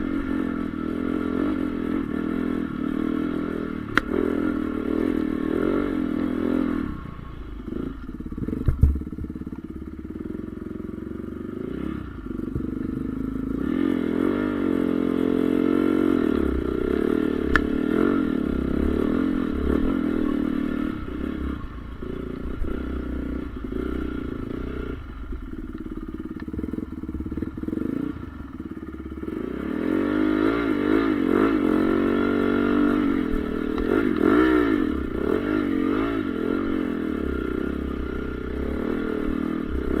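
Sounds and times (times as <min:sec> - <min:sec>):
motorbike engine revving: 0:00.0 - 0:40.0.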